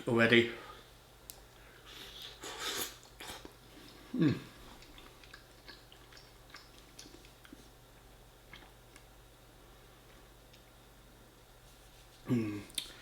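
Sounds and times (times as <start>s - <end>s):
chewing and wet mouth sounds: 4.6s - 7.7s, 8.4s - 9.1s.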